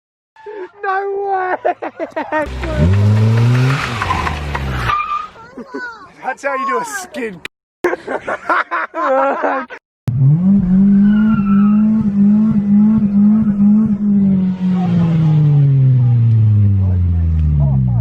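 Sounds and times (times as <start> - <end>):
tyres skidding: 2.1 - 5.6, 10.1 - 17.9
car engine revving: 2.4 - 4.9, 10.1 - 18.0.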